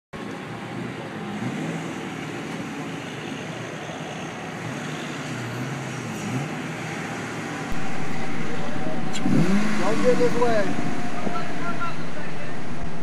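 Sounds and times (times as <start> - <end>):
car engine running at low revs: 7.6 - 13.0.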